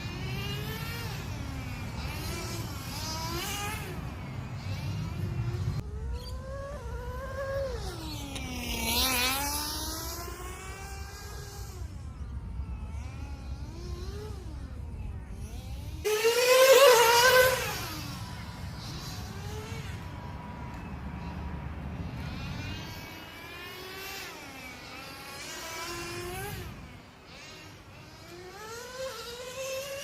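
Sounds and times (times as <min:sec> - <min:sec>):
model car nitro engine revving: 0:00.0 - 0:20.8, 0:22.0 - 0:30.0.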